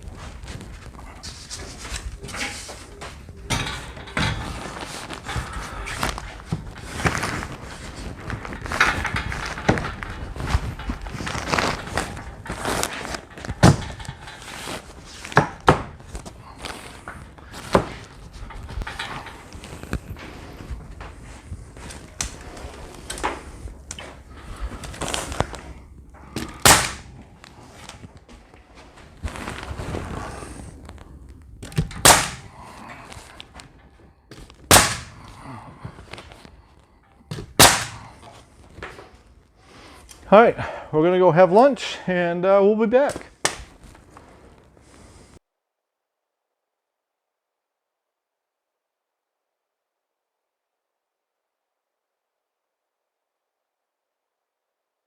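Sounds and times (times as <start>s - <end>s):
rough scraping handling noise: 0.0s - 40.3s
knocks and thuds of carpentry: 10.9s - 16.1s, 16.8s - 20.0s
nails hammered into wooden boards: 15.4s - 15.9s, 26.4s - 27.1s, 31.6s - 32.6s, 34.7s - 35.2s, 37.3s - 38.2s
sharp blows on wood: 26.4s - 27.1s, 31.7s - 32.5s, 34.7s - 35.2s, 37.6s - 38.2s.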